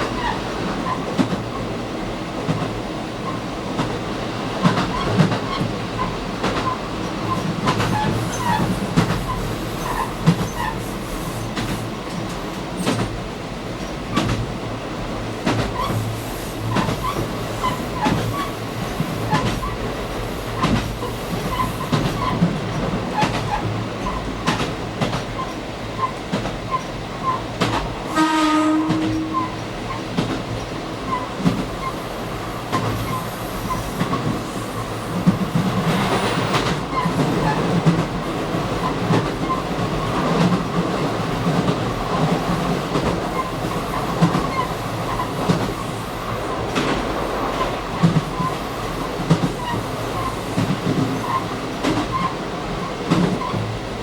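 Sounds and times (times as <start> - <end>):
train engine and wheel rumble: 0.0 - 54.0
train horn blast: 28.1 - 29.6.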